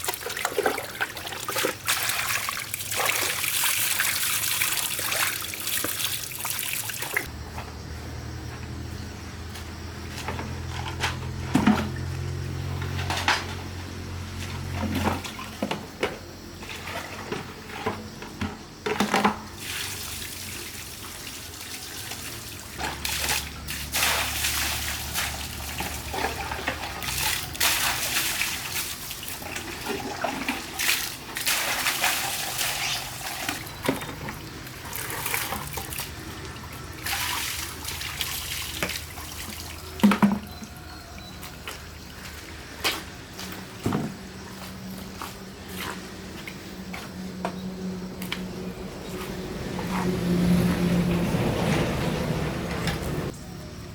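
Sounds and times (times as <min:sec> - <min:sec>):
water running and splashing: 0:00.0 - 0:07.3, 0:19.6 - 0:43.6.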